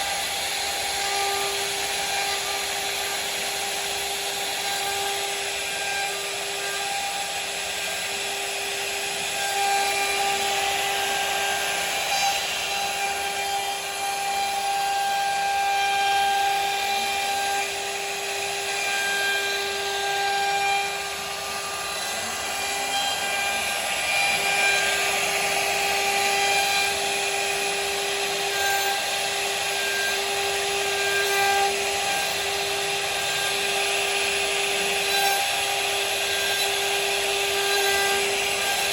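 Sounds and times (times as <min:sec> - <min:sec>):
bit rasping into wood: 0:00.0 - 0:38.9
router spindle high whine: 0:00.0 - 0:38.9.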